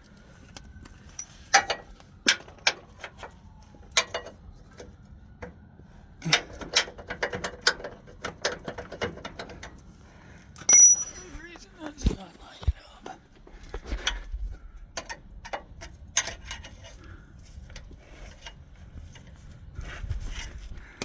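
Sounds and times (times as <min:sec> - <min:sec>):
hand tools clicking and knocking on metal: 0:01.1 - 0:05.6, 0:06.2 - 0:09.8, 0:10.6 - 0:11.5, 0:15.0 - 0:17.0.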